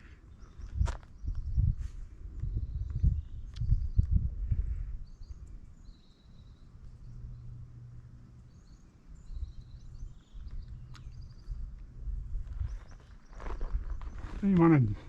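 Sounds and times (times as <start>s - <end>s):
faint high bird chirps: 5.0s - 7.6s, 8.4s - 11.7s.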